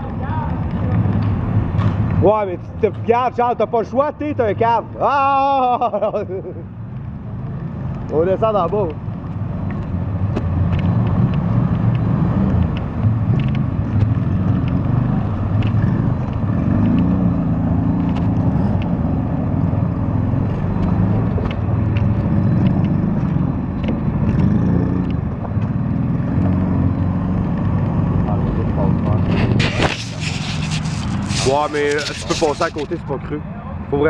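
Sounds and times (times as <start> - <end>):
quad bike engines running: 7.4 - 34.0.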